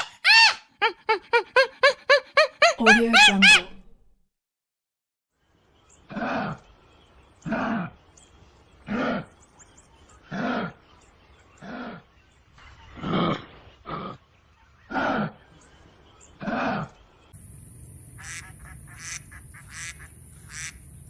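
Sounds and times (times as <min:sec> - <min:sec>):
animal giving pitched calls: 0:00.0 - 0:03.8.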